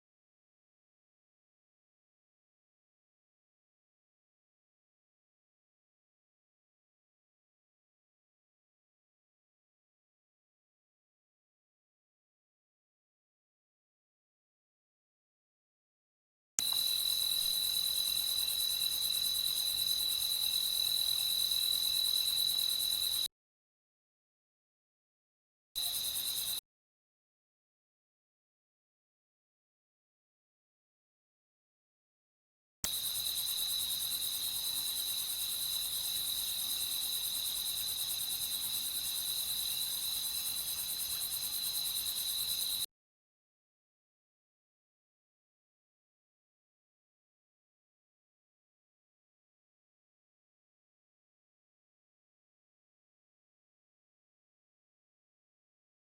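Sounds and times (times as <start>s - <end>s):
crickets chirping: 16.6s - 23.3s, 25.8s - 26.6s, 32.9s - 42.9s.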